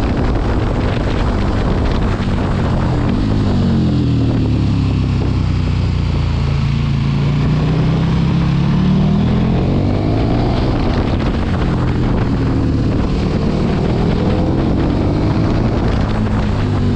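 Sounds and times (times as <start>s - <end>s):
motorcycle engine revving: 0.0s - 16.9s
wind rush on microphone: 0.0s - 16.9s.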